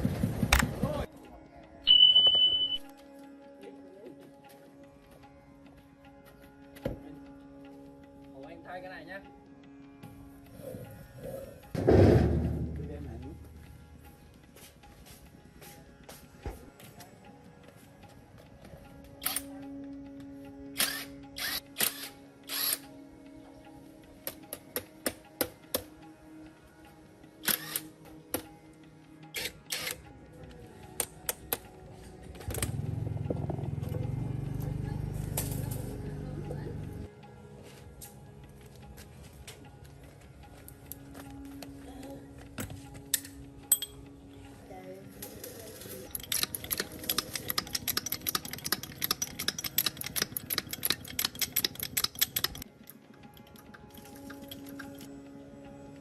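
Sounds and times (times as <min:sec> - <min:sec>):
metal clicks and clanks: 0:45.2 - 0:55.1.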